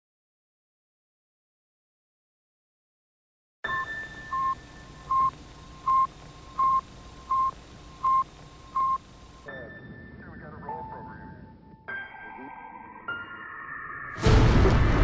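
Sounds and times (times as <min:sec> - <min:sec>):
short electronic beeps: 0:03.7 - 0:09.0.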